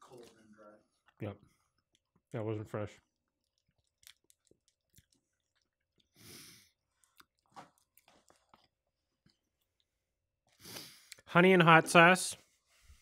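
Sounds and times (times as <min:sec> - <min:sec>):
person chewing food: 0:03.1 - 0:11.2.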